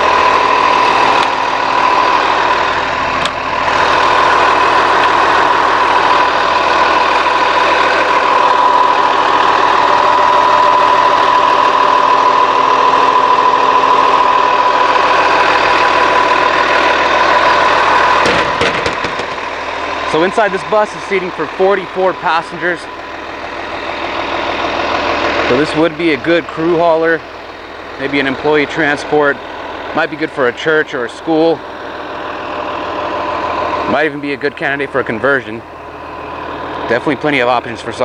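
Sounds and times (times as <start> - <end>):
diesel bus engine idling: 0.0 - 38.0
high whine: 0.0 - 38.0.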